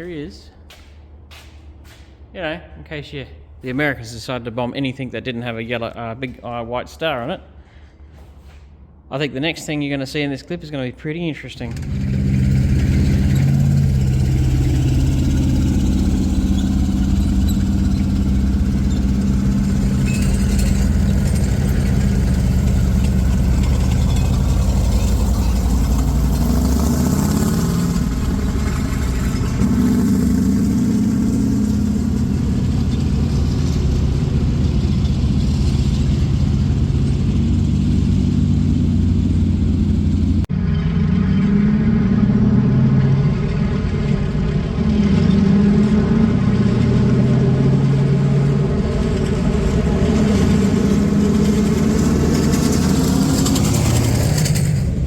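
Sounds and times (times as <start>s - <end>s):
tank engine running: 11.6s - 55.0s.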